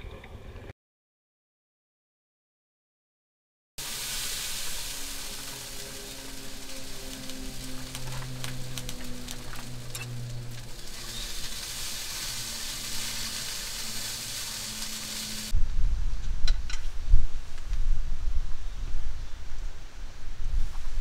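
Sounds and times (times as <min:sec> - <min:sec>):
food frying with crackling pops: 0:03.8 - 0:15.6
sizzling hiss: 0:03.8 - 0:15.6
low rumble: 0:03.9 - 0:20.9.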